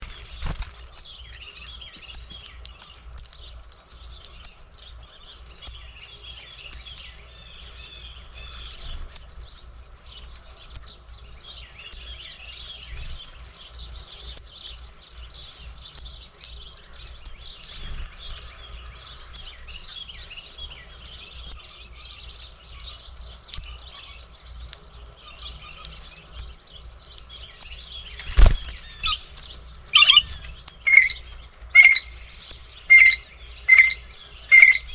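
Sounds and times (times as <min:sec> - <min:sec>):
small birds chirping: 0:00.0 - 0:34.9
sharp bird chip: 0:24.6 - 0:31.2, 0:31.8 - 0:34.9.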